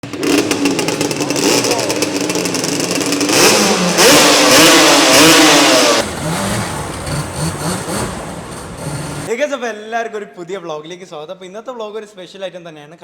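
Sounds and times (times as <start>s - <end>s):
two-stroke quad bike engine revving: 0.0s - 9.3s.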